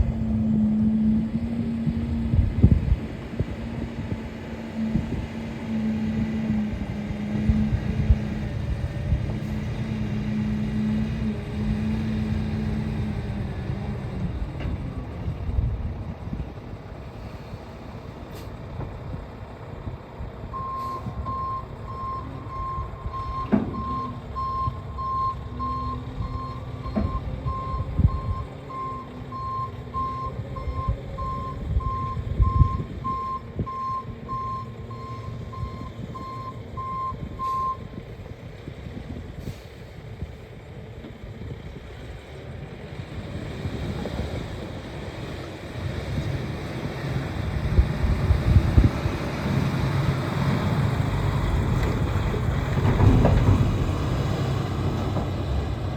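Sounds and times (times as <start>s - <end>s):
diesel engine running: 0.0s - 55.9s
truck backup alarm beeping: 20.5s - 38.2s.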